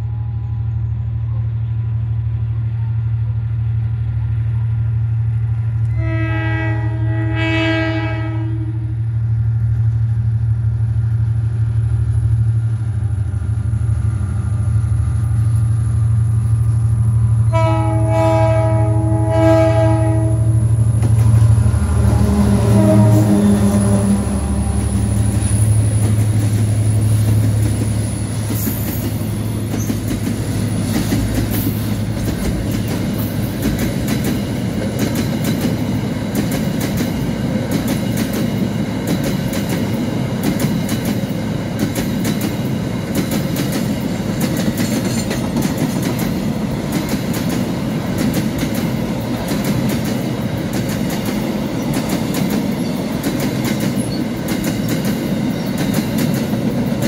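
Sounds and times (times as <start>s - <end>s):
diesel locomotive engine hum: 0.0s - 57.0s
train wheels rumbling on rail: 0.0s - 57.0s
wheels clicking over rail joints: 25.4s - 57.0s.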